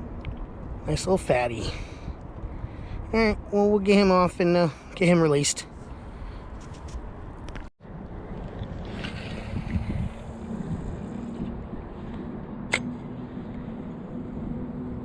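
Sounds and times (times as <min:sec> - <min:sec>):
wind on microphone: 0:05.8 - 0:15.0
low motor hum: 0:07.9 - 0:15.0
sharp click: 0:12.7 - 0:12.9.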